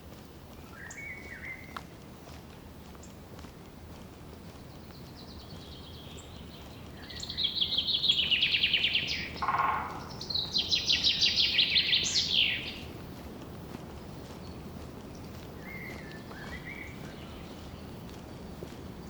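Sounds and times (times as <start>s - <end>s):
songbird trilling: 5.2s - 13.0s
brief lower bird call: 8.2s - 12.8s.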